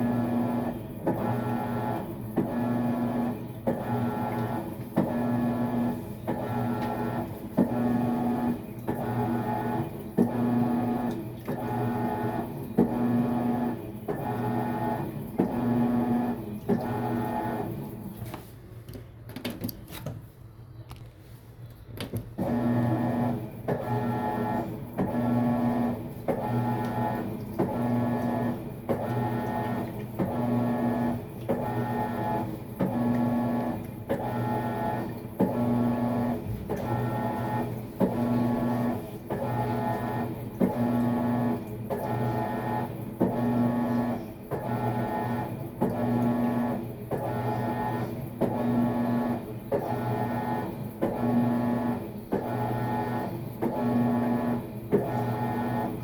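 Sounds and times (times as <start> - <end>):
washing machine motor humming: 0.0 - 20.8, 21.8 - 56.0.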